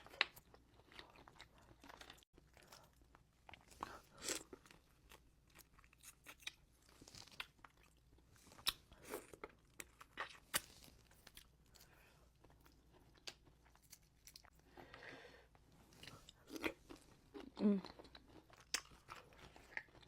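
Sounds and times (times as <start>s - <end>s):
person chewing and biting: 15.9s - 20.0s.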